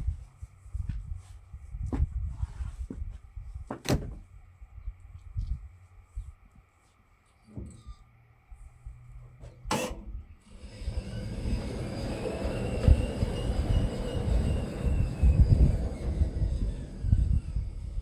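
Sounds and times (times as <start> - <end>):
bandsaw mill running: 10.5 - 18.0.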